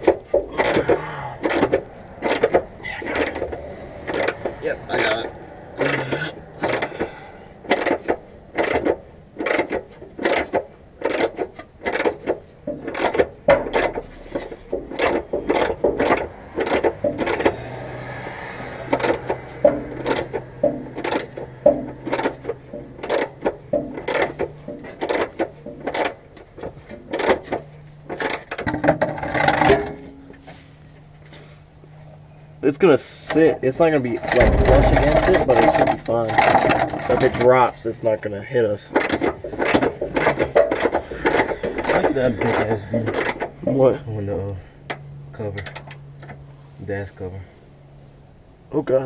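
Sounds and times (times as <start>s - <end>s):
ratchet wrench clicking: 0.2s - 5.2s, 5.8s - 7.1s, 7.7s - 14.0s, 14.9s - 17.6s, 18.9s - 26.2s, 27.1s - 27.5s, 38.9s - 43.5s.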